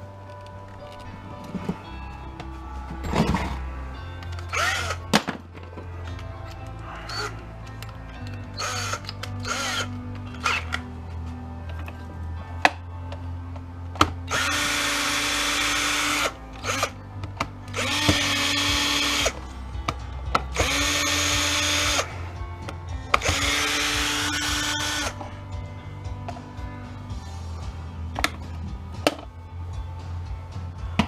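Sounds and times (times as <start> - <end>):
electric drill running: 4.4 - 5.1, 8.6 - 10.8, 14.3 - 17.0, 17.7 - 19.4, 20.5 - 22.2, 23.2 - 25.2.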